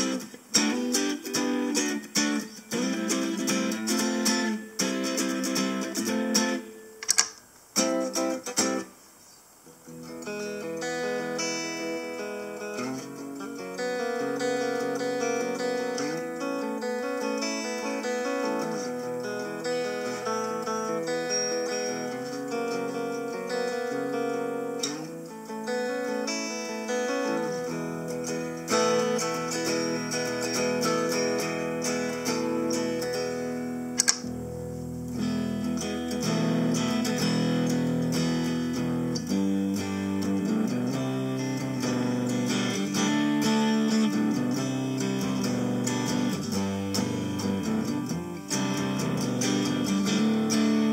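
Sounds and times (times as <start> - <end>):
electric guitar notes and chords: 0.0 - 8.9, 9.7 - 50.9
sharp click: 7.0 - 7.4, 34.0 - 34.4.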